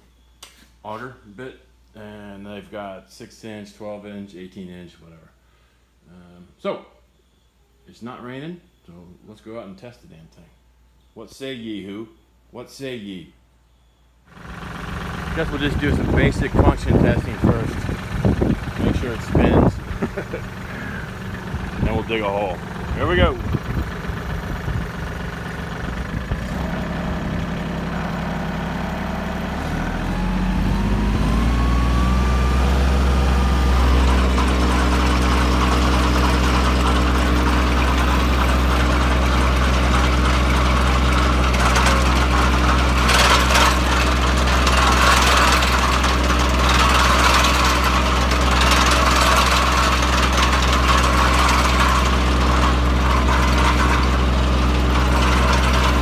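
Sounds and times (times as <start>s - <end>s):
auger grinding into ground: 14.3s - 56.0s
tractor engine revving: 14.3s - 56.0s.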